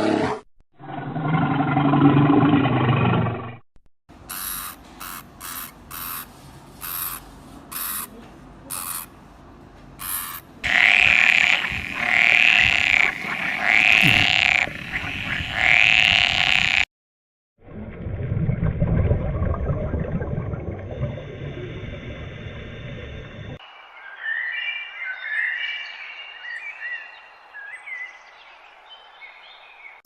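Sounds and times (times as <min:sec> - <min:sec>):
animal calling: 0:04.3 - 0:09.1, 0:10.0 - 0:16.8
low rough animal sound: 0:10.7 - 0:14.7.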